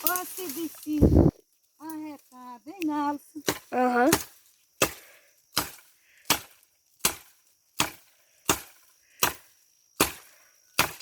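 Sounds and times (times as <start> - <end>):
blade chopping wood: 5.6 - 9.4, 10.0 - 11.0.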